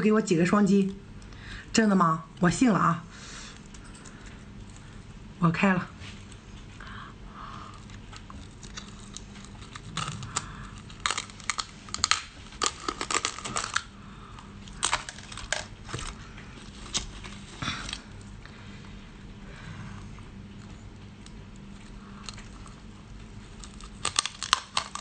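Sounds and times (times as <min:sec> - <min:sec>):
shell cracking and crunching: 0:07.6 - 0:18.3, 0:21.2 - 0:25.0.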